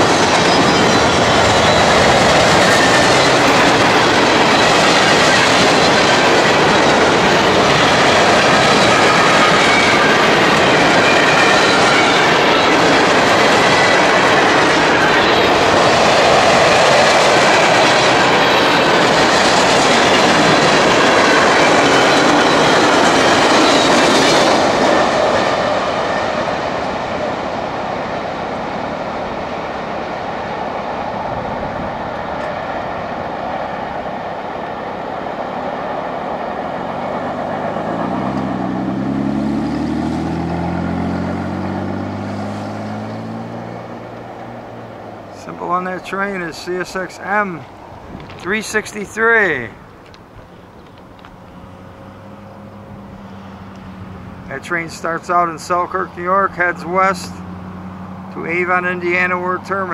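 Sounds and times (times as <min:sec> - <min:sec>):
freight train rolling past: 0:00.0 - 0:59.9
road vehicle engine speeding up: 0:36.1 - 0:45.3, 0:56.1 - 0:59.7.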